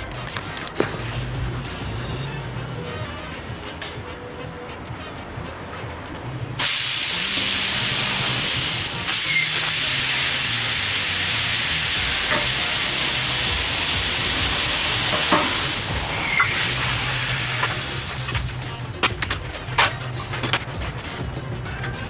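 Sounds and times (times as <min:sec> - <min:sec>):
compressed air hissing: 0:06.2 - 0:22.0.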